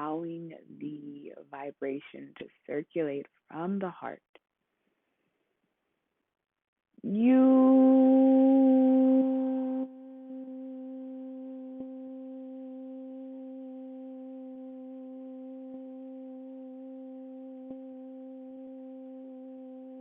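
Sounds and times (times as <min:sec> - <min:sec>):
held drone tone: 0:07.1 - 0:20.0.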